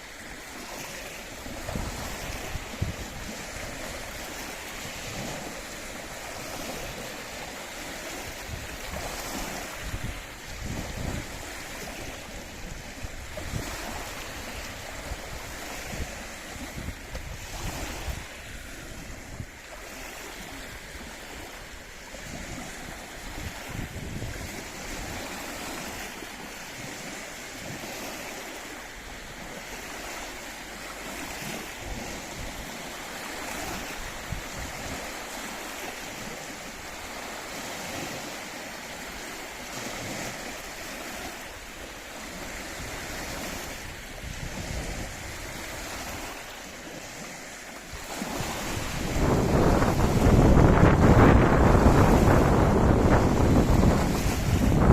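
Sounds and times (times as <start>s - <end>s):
waves washing against shore: 0.0s - 54.9s
wind buffeting microphone: 0.2s - 54.9s.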